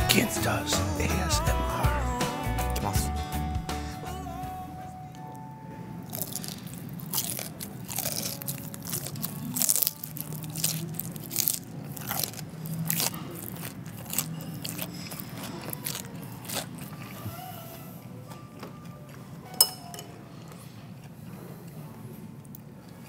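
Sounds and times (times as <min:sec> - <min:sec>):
crunching fried chicken: 0:06.0 - 0:17.8.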